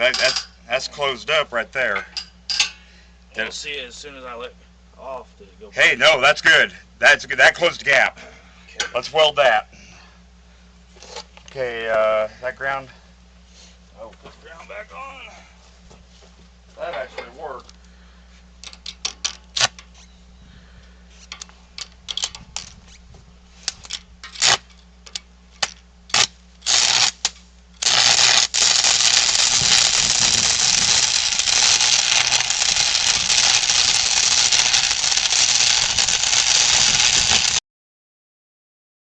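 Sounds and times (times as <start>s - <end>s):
arc welder crackling: 18.6s - 20.0s, 23.6s - 37.6s.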